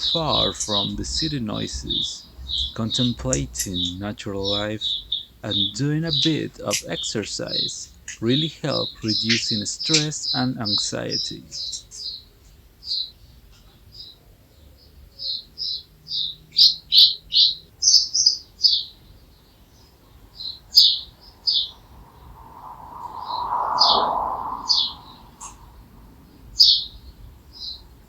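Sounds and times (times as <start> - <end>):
small songbird chirping: 0.0 - 28.0
broad rushing sound: 21.6 - 26.2.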